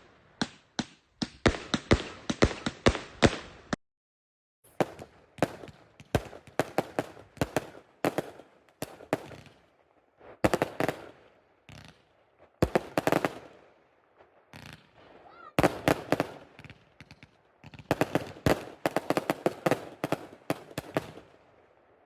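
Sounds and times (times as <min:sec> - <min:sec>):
fireworks bangs: 0:00.0 - 0:03.8, 0:04.7 - 0:21.7
fireworks crackling: 0:04.7 - 0:13.7, 0:14.3 - 0:21.4.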